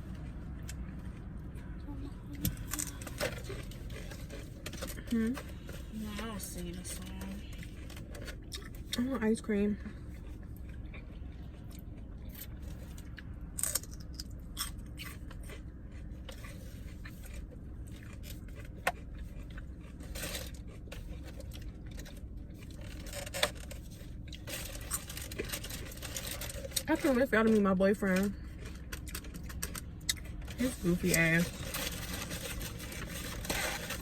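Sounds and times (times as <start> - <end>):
low car cabin rumble: 0.0 - 34.0
food packaging crunching: 10.6 - 27.6, 28.2 - 34.0.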